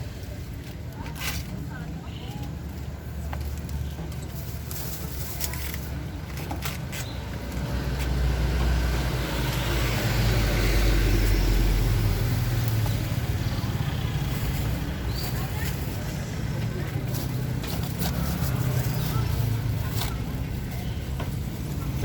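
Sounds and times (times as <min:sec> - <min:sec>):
vehicle engine rumbling past: 0:07.4 - 0:22.0.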